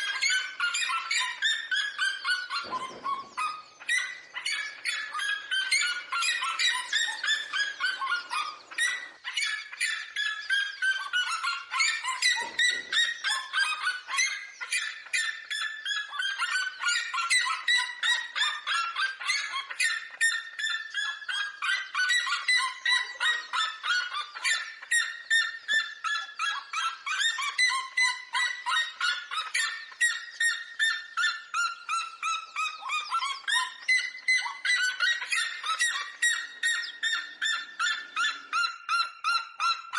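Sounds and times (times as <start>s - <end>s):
birds calling in rapid series: 0.0s - 39.9s.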